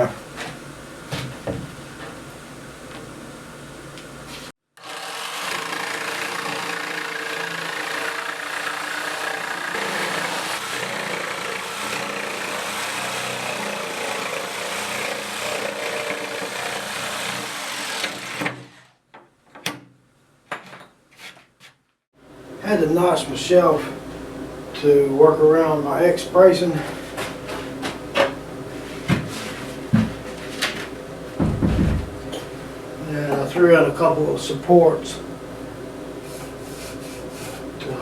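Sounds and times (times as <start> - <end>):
power saw cutting wood: 4.8 - 18.8.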